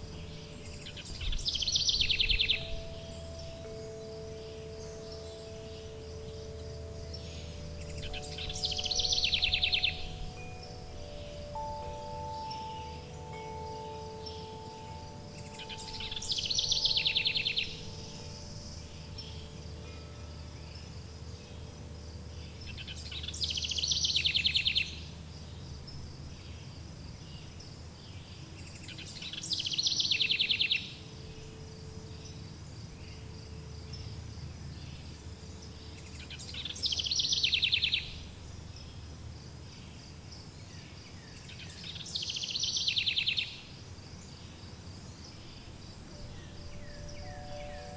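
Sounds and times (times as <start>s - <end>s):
wind chime tones: 0.0s - 23.4s, 46.0s - 47.9s
high insect-like buzz: 0.0s - 24.8s
songbird trilling: 0.0s - 25.6s, 27.3s - 39.0s, 40.6s - 44.6s, 45.2s - 47.9s
low rumble of ambience: 0.0s - 29.2s, 30.8s - 41.9s.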